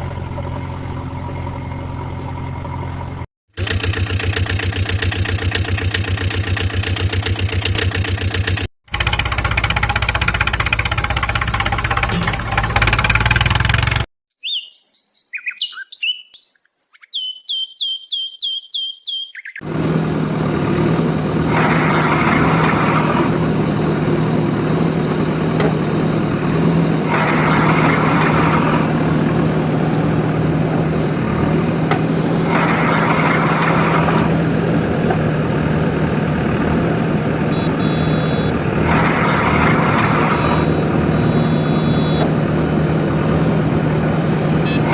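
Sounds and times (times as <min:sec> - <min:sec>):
vehicle engine running: 0:00.0 - 0:14.1, 0:19.6 - 0:44.9
bird-like chirps: 0:14.3 - 0:19.6.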